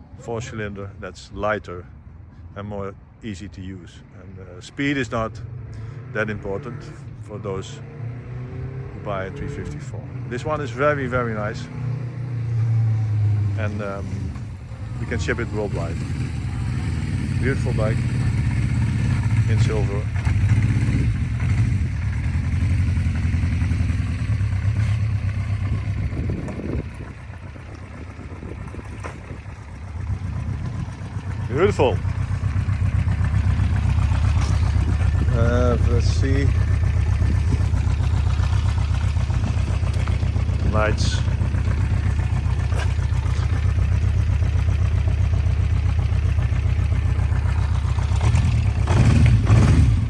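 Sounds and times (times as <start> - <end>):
motorcycle engine idling: 12.6 - 50.0.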